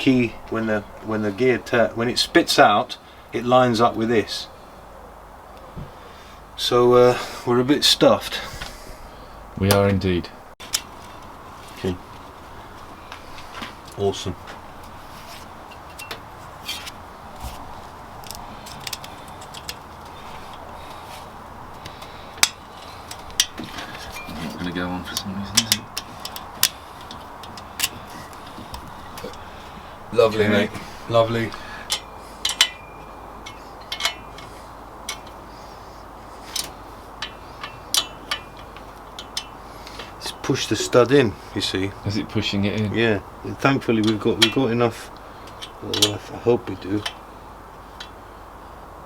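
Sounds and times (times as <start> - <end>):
steady background hiss: 0.0 - 49.0
tools and engine parts clicking: 10.6 - 11.3, 13.4 - 17.0, 18.0 - 30.0, 31.0 - 41.2, 43.6 - 48.8.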